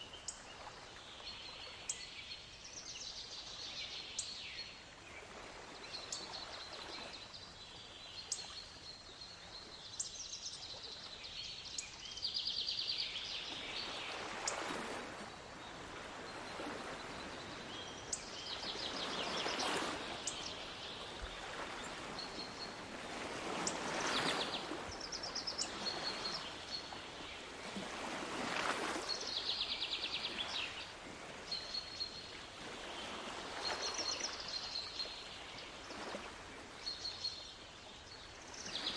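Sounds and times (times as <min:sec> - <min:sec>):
waves washing in: 0:13.4 - 0:36.9.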